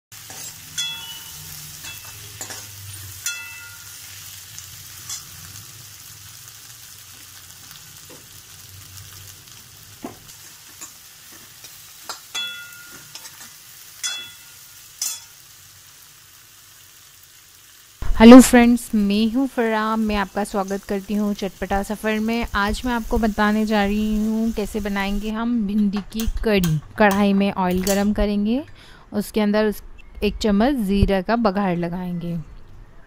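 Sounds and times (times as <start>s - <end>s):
okra sizzling in oil: 0.1s - 25.4s
steel spoon knocking on pan: 0.7s - 3.9s, 12.1s - 13.3s, 14.0s - 15.3s.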